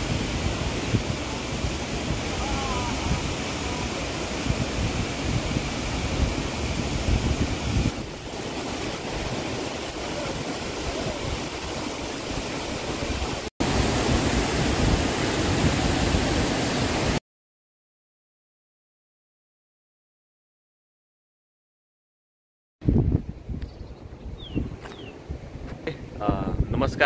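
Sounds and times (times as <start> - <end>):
wind buffeting microphone: 0.0 - 16.8, 22.8 - 27.0
water rushing: 0.0 - 17.2.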